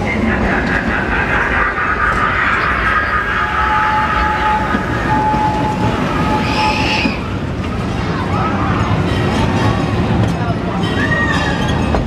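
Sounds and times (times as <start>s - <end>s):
high-pitched whining tones: 0.0s - 7.4s
train rumbling on track: 0.0s - 12.0s.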